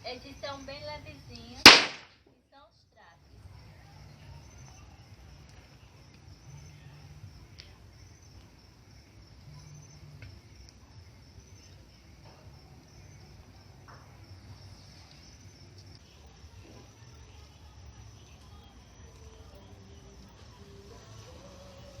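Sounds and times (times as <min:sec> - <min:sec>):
crickets chirping: 0:00.0 - 0:22.0
faint snaps: 0:07.5 - 0:07.8.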